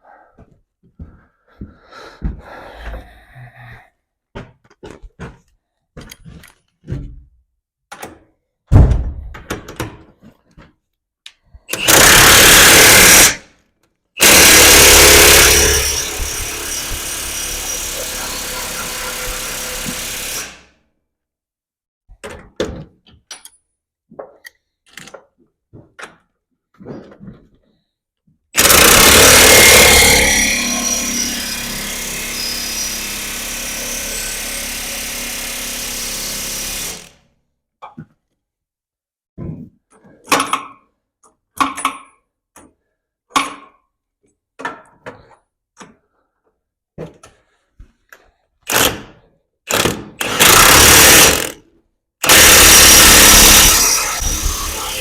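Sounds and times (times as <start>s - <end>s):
impact wrench running: 11.7s - 13.4s, 14.2s - 20.6s, 28.6s - 37.1s, 48.7s - 49.0s, 49.7s - 51.6s, 52.2s - 55.0s.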